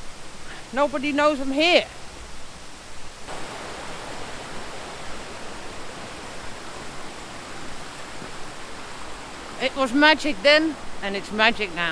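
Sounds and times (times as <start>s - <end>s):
waterfall and stream rushing: 0.0s - 11.9s.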